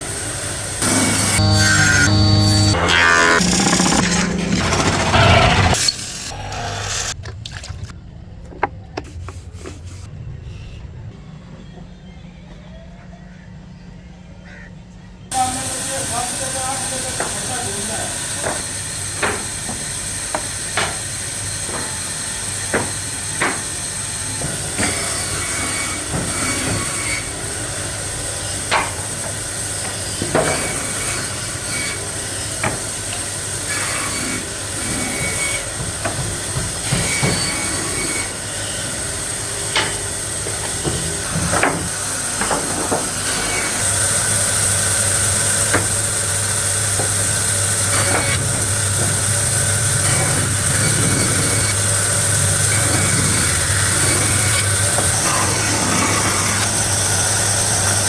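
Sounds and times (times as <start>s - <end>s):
workshop machinery running: 0.0s - 11.2s, 15.2s - 58.0s
wood knocking and clacking: 7.2s - 9.8s, 39.7s - 43.2s.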